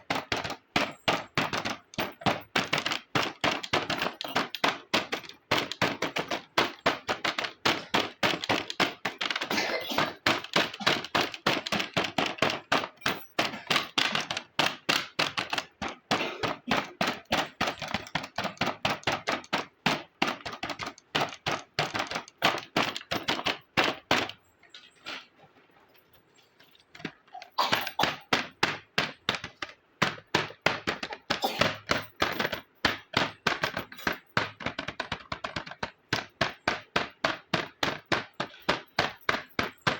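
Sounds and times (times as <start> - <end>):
plastic toy pieces clicking: 0.0 - 24.4.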